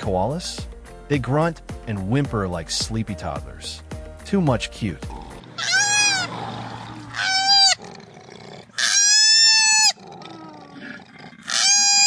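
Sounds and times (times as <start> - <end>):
baby koala whimpering squeals: 5.6 - 7.9, 8.7 - 12.0.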